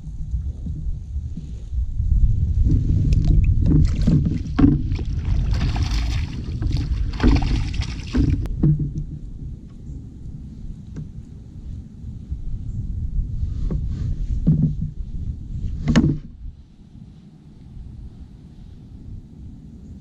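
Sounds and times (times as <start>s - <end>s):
low rumble: 0.0s - 20.0s
paddle strokes splashing water: 3.3s - 8.5s
sharp knocks: 6.6s - 9.1s.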